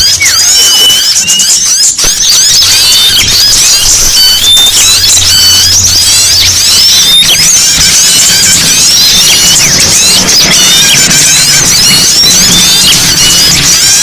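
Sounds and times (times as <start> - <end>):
small songbirds chirping: 0.0 - 14.0.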